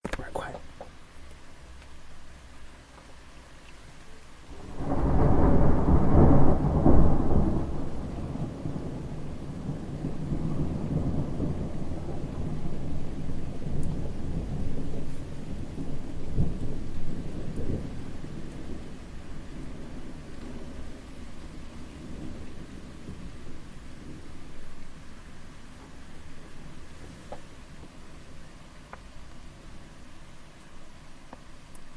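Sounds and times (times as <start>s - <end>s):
rain falling steadily: 0.0s - 31.9s
sharp thunder strikes: 4.5s - 24.7s
thunder rumbling: 4.5s - 31.2s.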